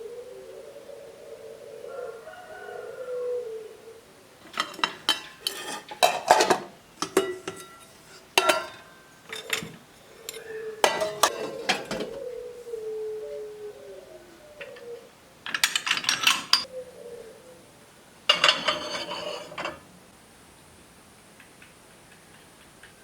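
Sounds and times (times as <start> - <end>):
utensils clinking against dishes: 4.4 - 12.2, 15.5 - 16.7, 18.3 - 19.8.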